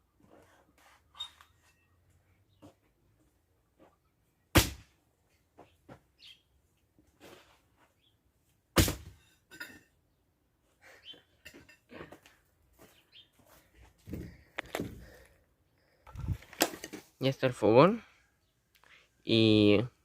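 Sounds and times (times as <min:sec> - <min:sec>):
bird chirp: 0:05.6 - 0:06.6, 0:10.9 - 0:11.4.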